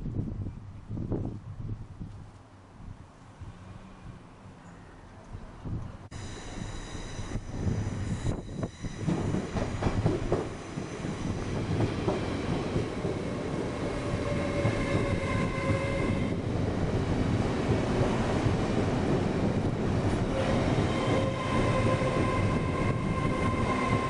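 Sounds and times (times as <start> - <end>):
high steady whining tones: 6.1 - 12.2
train wheels rumbling on rails: 6.1 - 24.0.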